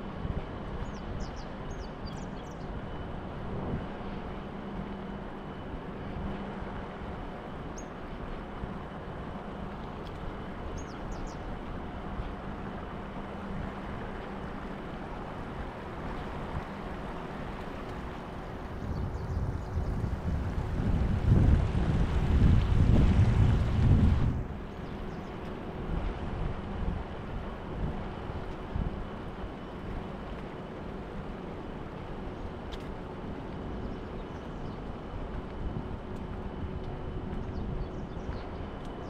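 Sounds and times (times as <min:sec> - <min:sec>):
low rumble of traffic: 0:00.0 - 0:39.0
wind on microphone: 0:03.2 - 0:04.0, 0:15.4 - 0:30.4, 0:33.5 - 0:39.0.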